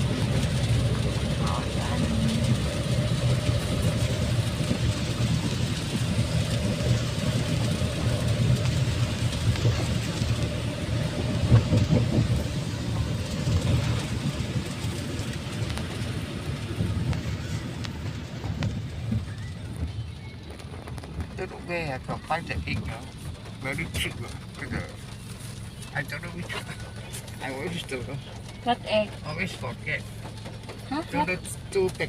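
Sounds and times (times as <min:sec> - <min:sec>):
car engine and road rumble: 0:00.0 - 0:32.0.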